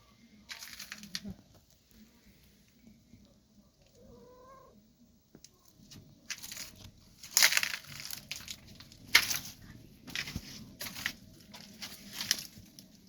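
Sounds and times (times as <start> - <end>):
scuffing and rustling: 6.3 - 13.0.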